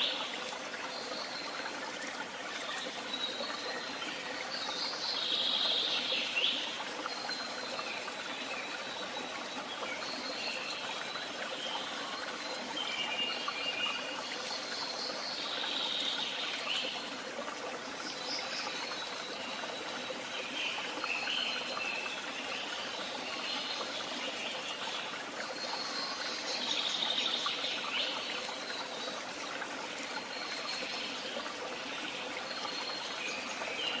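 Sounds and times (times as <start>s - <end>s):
songbirds chirping: 0.0s - 34.0s
water trickling in a stream: 0.0s - 34.0s.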